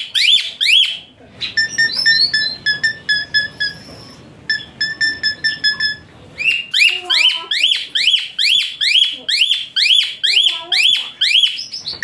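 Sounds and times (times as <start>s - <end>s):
starling singing whistled notes: 1.5s - 12.0s.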